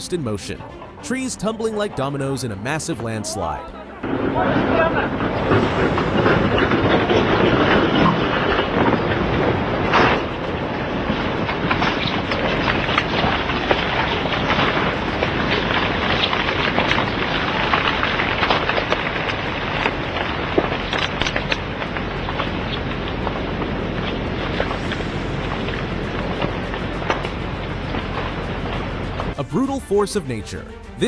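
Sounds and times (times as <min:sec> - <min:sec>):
heavy rumble of moving earth: 0:04.0 - 0:29.4
trees cracking and snapping: 0:04.6 - 0:29.3.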